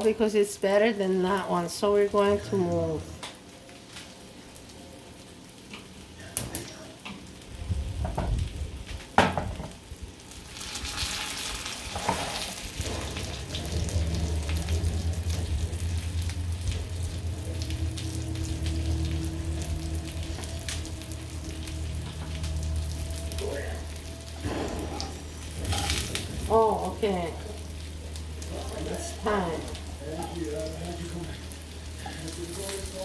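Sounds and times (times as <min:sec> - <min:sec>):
food sizzling in a pan: 0:00.0 - 0:33.0
low hum: 0:12.3 - 0:33.0.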